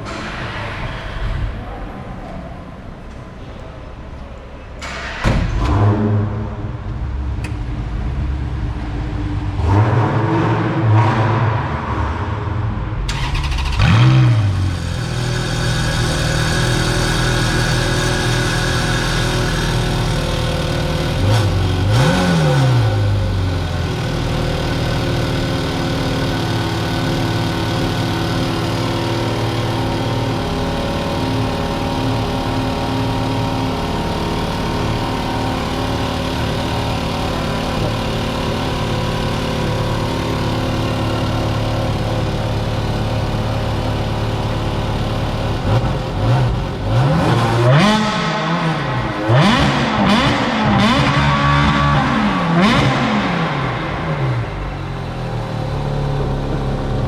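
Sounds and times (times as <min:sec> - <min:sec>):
car engine idling and revving: 0:01.2 - 0:57.0.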